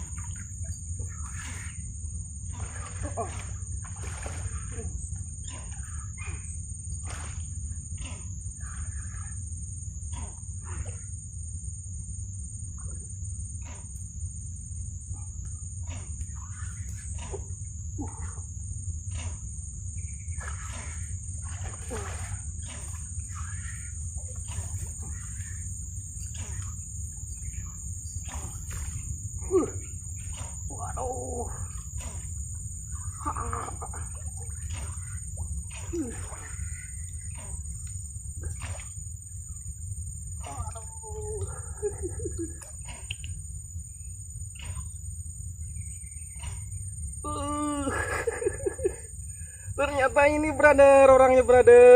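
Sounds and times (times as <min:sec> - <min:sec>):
high insect drone: 0:00.0 - 0:51.9.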